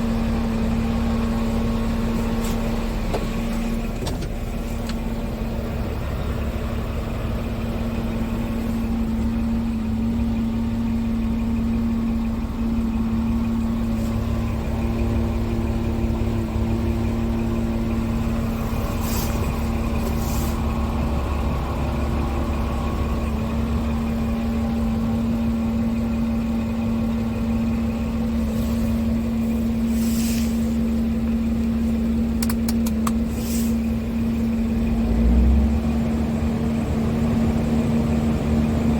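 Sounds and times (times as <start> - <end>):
diesel truck engine running: 0.0 - 38.9
short air hisses: 18.9 - 20.7, 29.8 - 30.9, 33.2 - 34.0.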